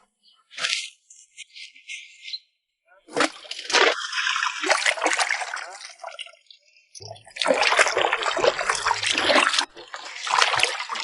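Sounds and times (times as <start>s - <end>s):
water splashing and running: 3.1s - 6.4s, 7.0s - 11.0s.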